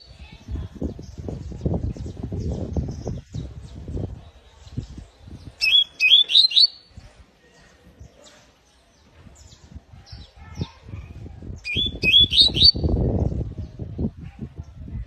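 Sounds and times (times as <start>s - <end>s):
canary chirping: 5.5s - 6.9s, 11.6s - 12.9s.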